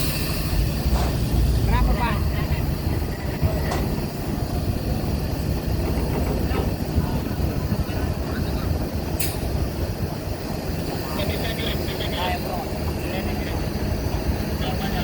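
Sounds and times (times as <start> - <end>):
sharp hiss: 0.0 - 1.6
engines rumbling: 0.0 - 15.0.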